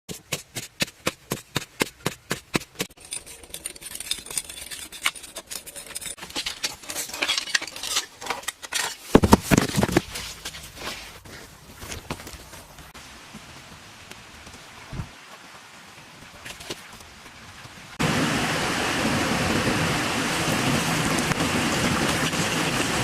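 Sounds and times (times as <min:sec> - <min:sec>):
scraping and rustling: 0:00.1 - 0:12.9.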